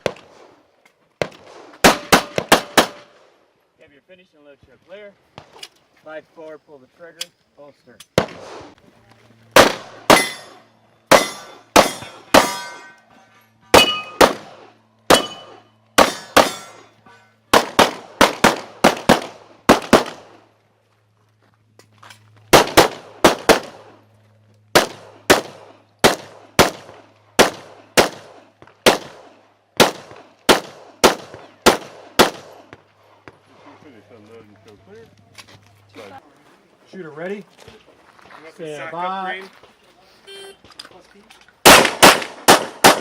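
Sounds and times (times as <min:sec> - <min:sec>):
rapid pistol shots: 0:01.2 - 0:03.1, 0:09.6 - 0:10.5, 0:11.1 - 0:12.6, 0:13.8 - 0:16.7, 0:17.5 - 0:20.4, 0:22.5 - 0:24.0, 0:24.7 - 0:32.7, 0:41.6 - 0:43.0
metallic ringing tone: 0:10.2 - 0:14.2, 0:15.2 - 0:17.4.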